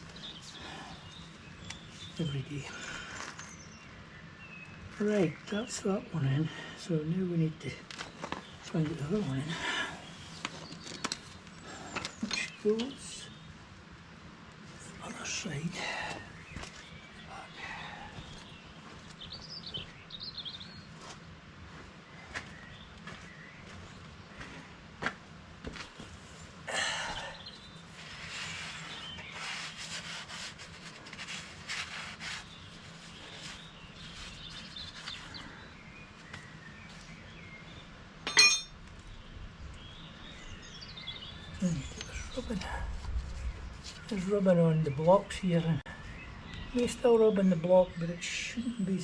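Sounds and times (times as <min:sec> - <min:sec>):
small clicks and rustling: 0:07.8 - 0:08.6, 0:10.4 - 0:12.9
sharp metallic clink: 0:38.2 - 0:38.8.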